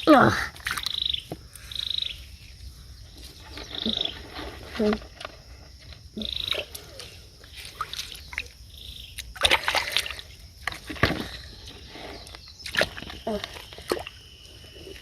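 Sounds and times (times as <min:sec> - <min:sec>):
rattling frog calls: 0:00.0 - 0:15.0
splashing in shallow water: 0:06.2 - 0:11.9, 0:12.6 - 0:15.0.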